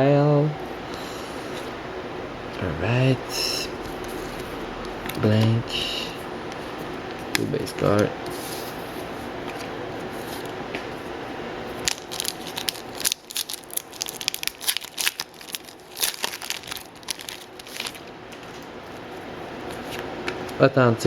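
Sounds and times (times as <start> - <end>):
card pack wrapper crinkling: 11.7 - 18.6.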